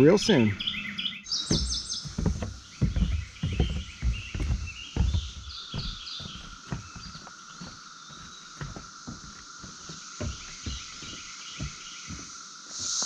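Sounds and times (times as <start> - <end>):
cicada chorus drone: 0.0 - 13.0
songbirds chirping: 0.0 - 13.0
footsteps on a trail: 1.3 - 13.0.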